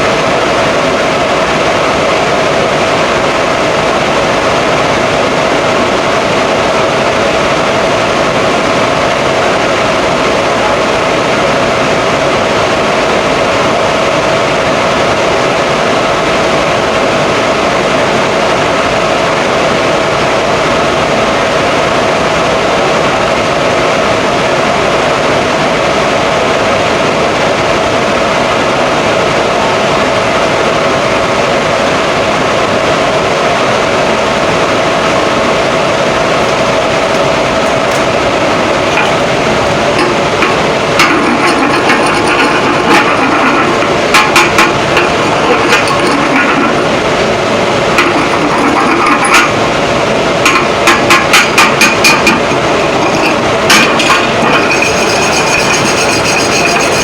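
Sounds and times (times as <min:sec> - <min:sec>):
loud machinery hum: 0:00.0 - 0:57.0.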